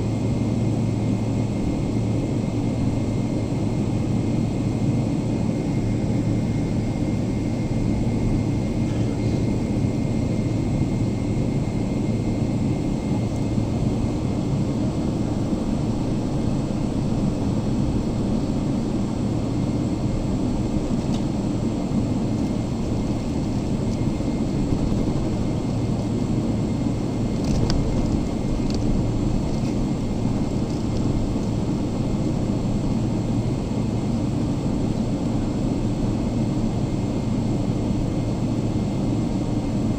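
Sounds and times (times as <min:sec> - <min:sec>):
low hum: 0:00.0 - 0:38.8
air-conditioning air rushing: 0:13.6 - 0:36.8.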